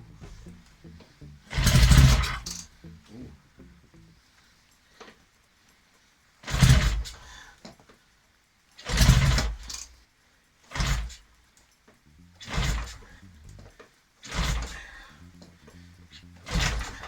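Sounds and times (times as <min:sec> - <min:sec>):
motorcycle engine kick-started: 0:00.0 - 0:02.7, 0:06.5 - 0:07.2, 0:08.8 - 0:09.9, 0:10.7 - 0:11.2, 0:12.4 - 0:17.0.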